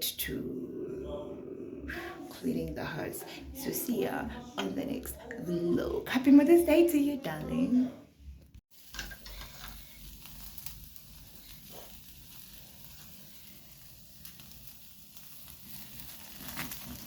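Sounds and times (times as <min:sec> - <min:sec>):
food sizzling in a frying pan: 0:08.7 - 0:17.0.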